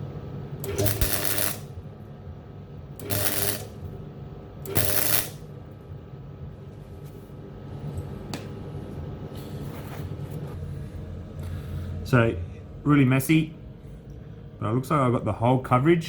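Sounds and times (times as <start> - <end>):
welder arc crackling: 0.0 - 1.9, 2.9 - 5.6
steady low hum: 0.0 - 16.0.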